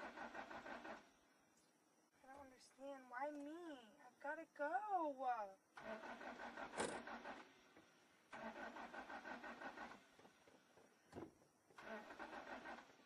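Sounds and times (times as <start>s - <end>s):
car engine cranking: 0.0s - 1.1s, 5.8s - 7.6s, 8.3s - 10.2s, 11.8s - 13.0s.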